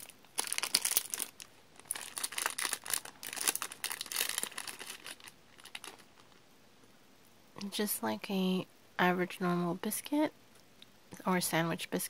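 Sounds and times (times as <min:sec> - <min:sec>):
snack wrapper crinkling and tearing: 0:00.0 - 0:06.4.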